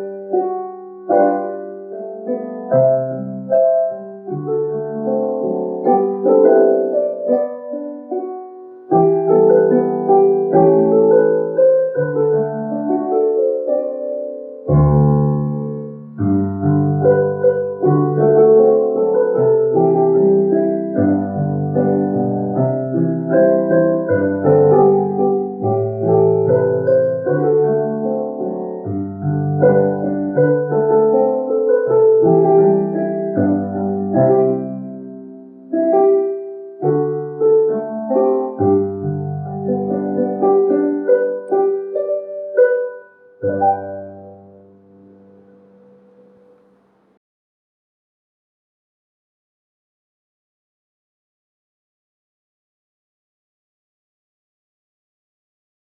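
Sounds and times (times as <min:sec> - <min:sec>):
solo piano hymn chords: 0:00.0 - 0:47.2.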